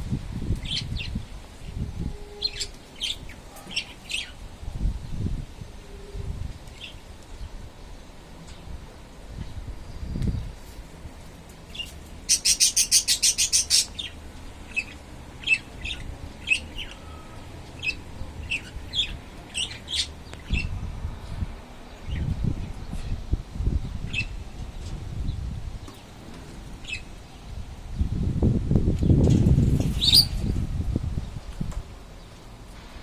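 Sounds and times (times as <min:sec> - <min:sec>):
wind buffeting microphone: 0:00.0 - 0:07.7, 0:08.8 - 0:11.8, 0:17.8 - 0:25.9, 0:26.8 - 0:32.2
small birds chirping: 0:02.5 - 0:04.4, 0:11.7 - 0:20.7.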